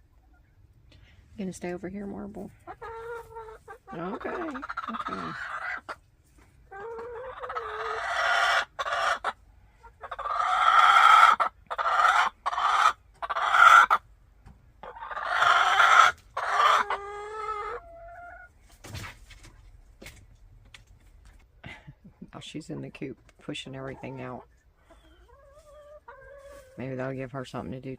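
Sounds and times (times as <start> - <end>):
hen squawking: 2.7 - 6.0.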